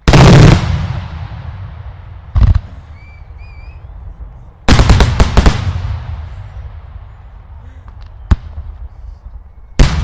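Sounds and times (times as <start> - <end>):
fireworks exploding: 0.0 - 3.7, 4.7 - 7.0, 9.8 - 10.0.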